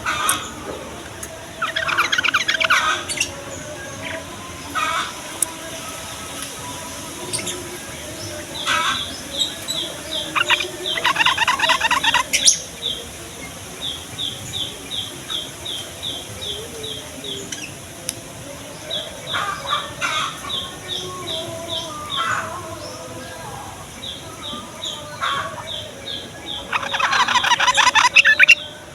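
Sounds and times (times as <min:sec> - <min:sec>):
bird chattering trill: 0:01.6 - 0:03.3, 0:10.1 - 0:12.6, 0:26.5 - 0:28.6.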